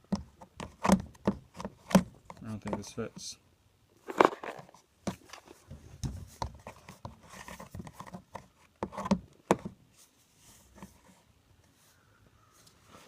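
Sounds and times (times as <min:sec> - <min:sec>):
plastic parts clicking and knocking: 0:00.0 - 0:03.3, 0:04.0 - 0:09.8.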